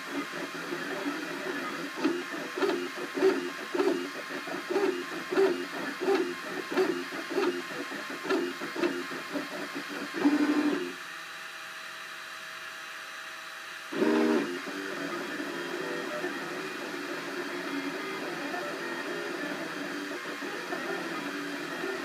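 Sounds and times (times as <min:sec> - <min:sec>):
printer stepper motors whining: 0:00.0 - 0:11.0, 0:13.9 - 0:22.0.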